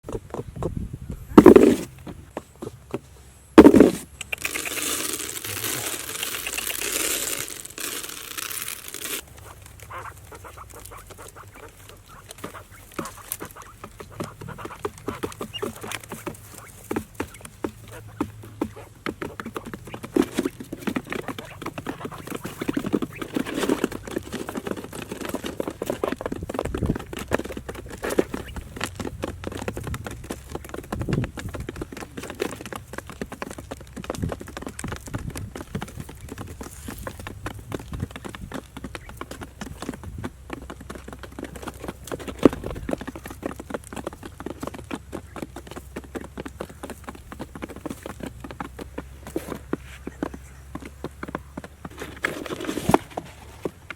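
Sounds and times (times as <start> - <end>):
rustling: 1.3 - 2.4, 3.0 - 53.9
ducks quacking: 9.4 - 16.8, 21.0 - 23.5.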